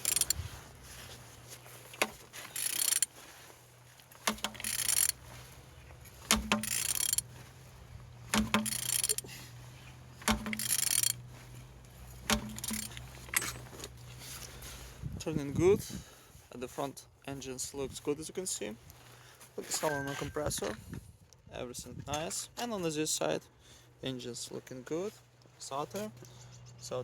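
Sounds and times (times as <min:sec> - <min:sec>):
ratchet wrench clicking: 0:00.0 - 0:00.4, 0:02.4 - 0:03.1, 0:04.2 - 0:05.2, 0:06.2 - 0:07.3, 0:08.3 - 0:09.3, 0:10.2 - 0:11.2, 0:12.3 - 0:13.5
engine clunk: 0:00.0 - 0:03.1, 0:04.1 - 0:14.7.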